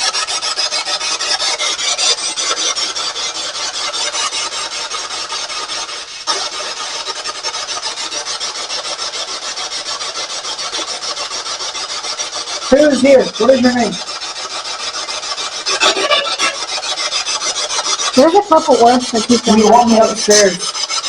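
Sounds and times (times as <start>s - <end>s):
choppy radio static: 15.8s - 16.6s.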